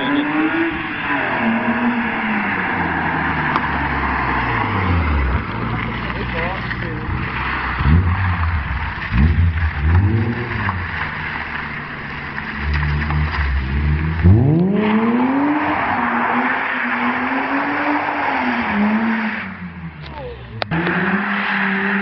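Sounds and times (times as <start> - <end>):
car accelerating hard: 0.0 - 22.0
car engine revving: 0.0 - 22.0.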